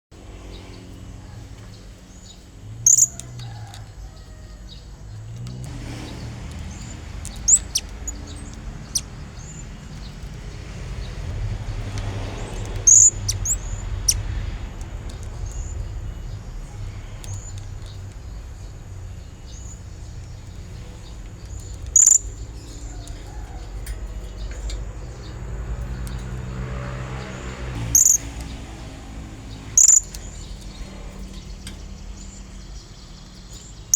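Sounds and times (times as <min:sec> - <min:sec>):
low steady rumble: 0:00.2 - 0:33.9
faint bird chirps: 0:06.7 - 0:10.3, 0:15.2 - 0:25.3, 0:27.9 - 0:28.3, 0:29.7 - 0:33.9.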